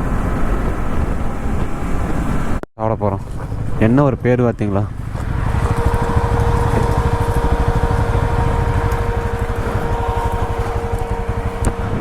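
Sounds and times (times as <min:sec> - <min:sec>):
motorcycle engine running: 0:03.2 - 0:12.0
faint steady whine: 0:04.8 - 0:12.0.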